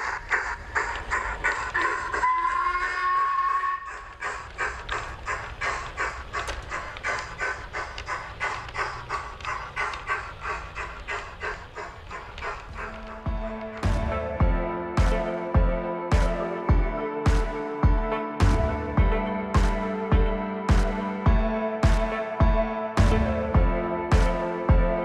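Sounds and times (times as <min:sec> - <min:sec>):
model steam locomotive chuffing: 0:00.0 - 0:13.9.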